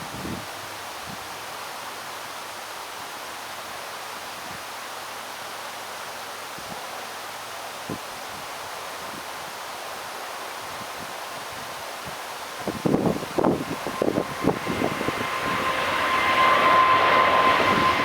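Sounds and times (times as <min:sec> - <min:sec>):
rushing wind: 0:00.0 - 0:01.4, 0:10.5 - 0:18.0
wind buffeting microphone: 0:10.8 - 0:18.0.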